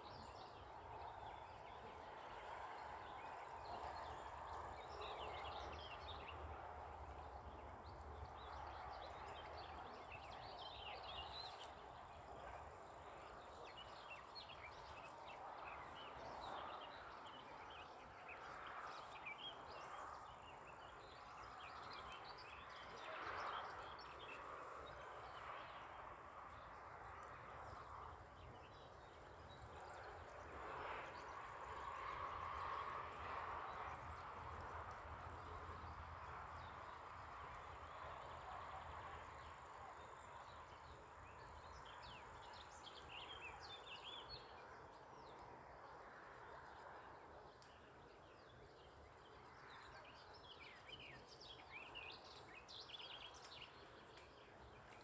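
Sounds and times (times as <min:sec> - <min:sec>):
small birds chirping: 0:33.7 - 0:55.0.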